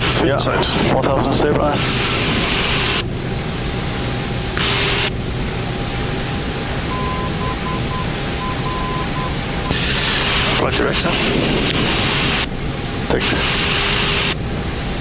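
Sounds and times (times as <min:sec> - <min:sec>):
cockpit airflow hiss: 0:00.0 - 0:15.0
faint steady tone: 0:06.7 - 0:09.8
dashed beeps: 0:06.9 - 0:09.8.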